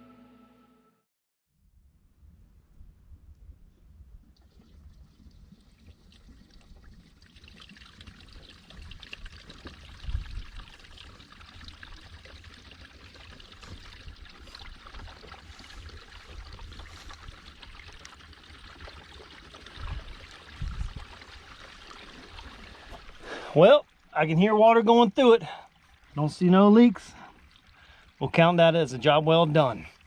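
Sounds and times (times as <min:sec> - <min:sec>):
water trickling through pipe: 0:04.2 - 0:30.0.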